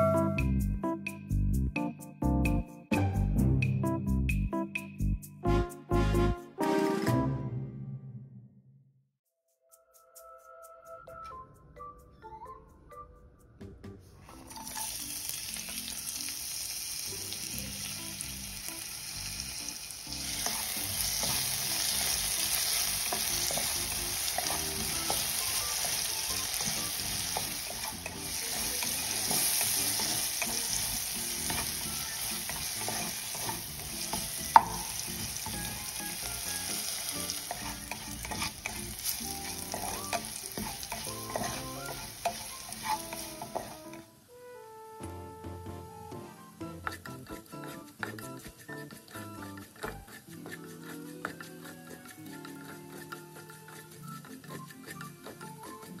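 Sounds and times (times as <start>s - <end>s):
spatula stirring and scraping: 14.3s - 16.3s, 20.0s - 44.1s, 46.6s - 56.0s
food sizzling in oil: 14.3s - 44.1s, 46.6s - 56.0s.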